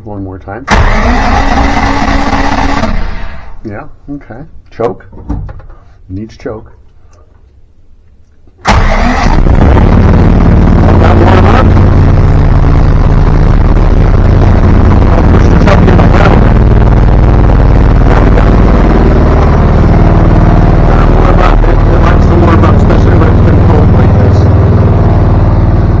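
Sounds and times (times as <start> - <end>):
small engine running: 0.7 - 3.6, 8.7 - 26.0.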